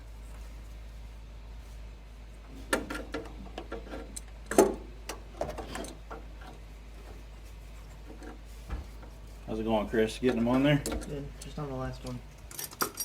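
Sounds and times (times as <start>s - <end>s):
steady low hum: 0.0s - 13.0s
clicks and knocks of parts handled: 10.3s - 13.0s.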